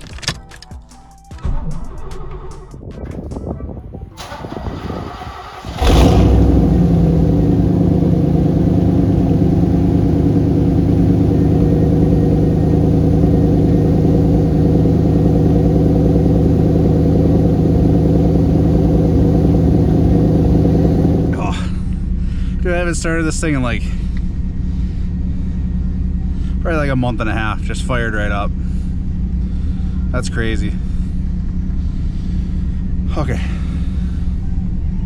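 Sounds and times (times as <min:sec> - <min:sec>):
car engine cranking: 0:04.2 - 0:22.1
car engine starting and idling: 0:04.2 - 0:35.0.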